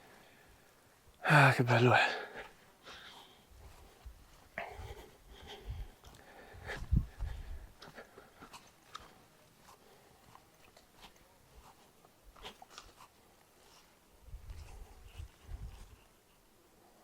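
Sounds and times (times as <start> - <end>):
small clicks and crunches: 8.4 - 9.2, 10.3 - 13.8.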